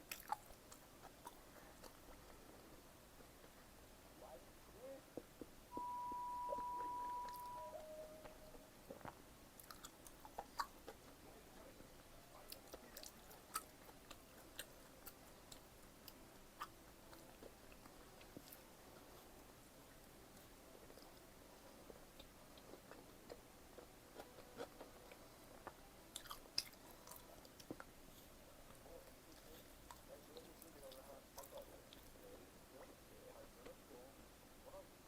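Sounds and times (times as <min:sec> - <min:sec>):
chewing and biting pizza: 0:00.0 - 0:02.4, 0:09.6 - 0:11.7, 0:12.4 - 0:19.3, 0:22.0 - 0:32.4
lower tone: 0:05.7 - 0:08.7
steady high tone: 0:05.7 - 0:08.9.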